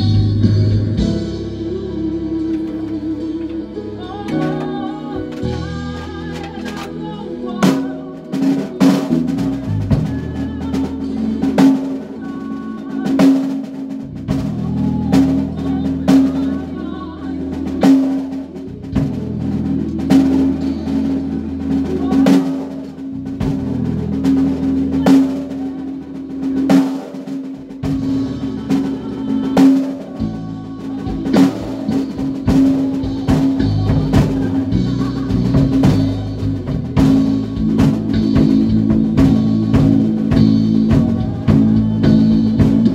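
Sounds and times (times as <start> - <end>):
low bass notes: 0.0 - 13.3, 13.9 - 26.8, 27.5 - 42.9
drum kit beat: 0.0 - 42.9.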